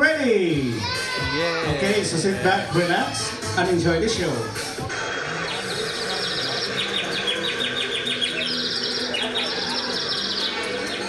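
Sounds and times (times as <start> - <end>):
high-pitched chirping trills: 4.5 - 11.0.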